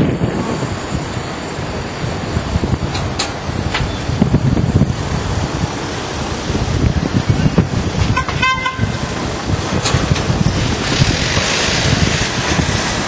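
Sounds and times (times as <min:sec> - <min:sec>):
wind buffeting microphone: 0:00.0 - 0:13.0
fluttering high horn toot: 0:08.2 - 0:09.2.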